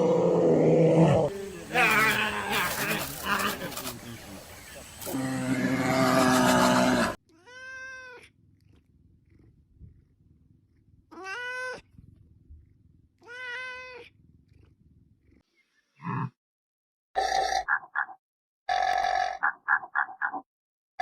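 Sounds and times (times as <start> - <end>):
loud animal sound: 0.0 - 7.2
cat meowing: 11.1 - 11.9.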